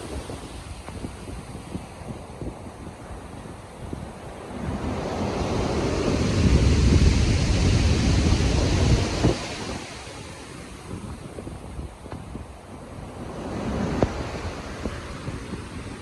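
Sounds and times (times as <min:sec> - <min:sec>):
ocean wave breaking: 0:00.0 - 0:03.4, 0:04.0 - 0:11.5
wind noise: 0:00.0 - 0:16.0.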